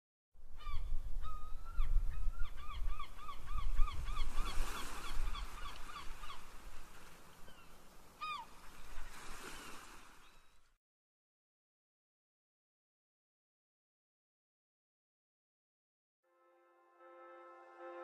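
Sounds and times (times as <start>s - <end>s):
bird calling: 0.6s - 6.6s, 7.2s - 10.7s.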